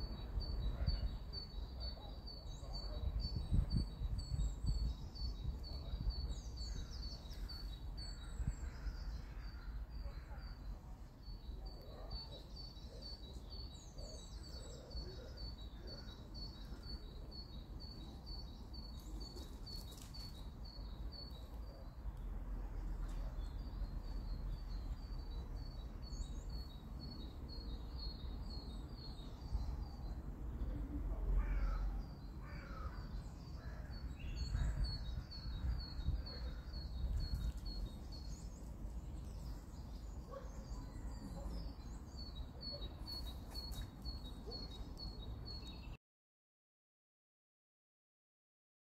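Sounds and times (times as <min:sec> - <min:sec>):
low wind rumble: 0:03.0 - 0:10.0, 0:28.8 - 0:40.4.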